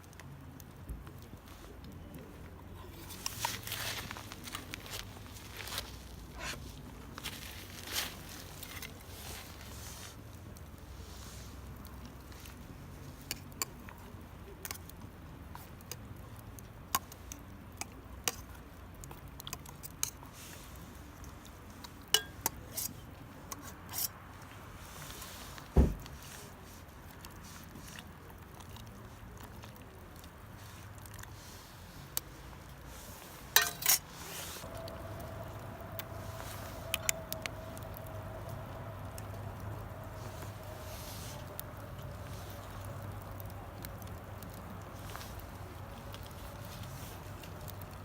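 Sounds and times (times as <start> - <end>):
heavy thump: 25.8 - 26.1.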